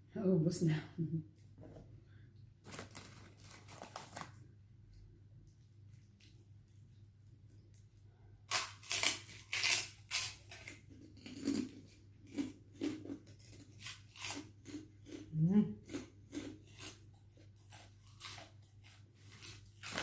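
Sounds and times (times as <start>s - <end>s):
crisp crunching of chewing: 2.6s - 4.4s, 7.5s - 20.0s.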